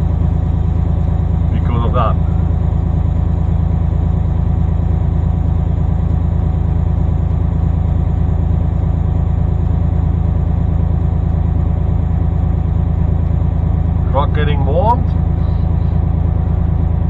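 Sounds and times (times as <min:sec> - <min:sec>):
truck diesel engine idling: 0:00.0 - 0:17.0.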